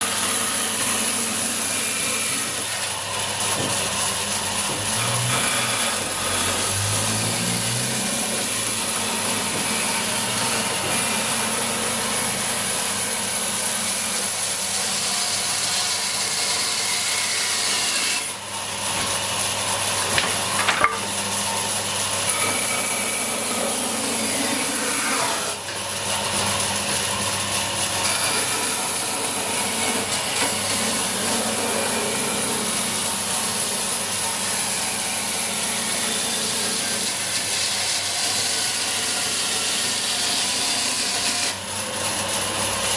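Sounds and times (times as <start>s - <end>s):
band saw cutting wood: 0.0s - 42.9s
sharp knocks: 20.0s - 21.1s.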